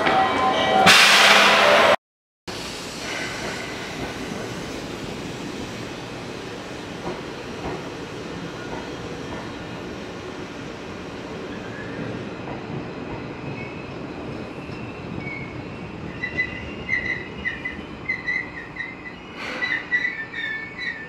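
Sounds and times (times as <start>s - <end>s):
train low rumble: 0.0s - 21.0s
high metallic wheel squeal: 14.5s - 21.0s.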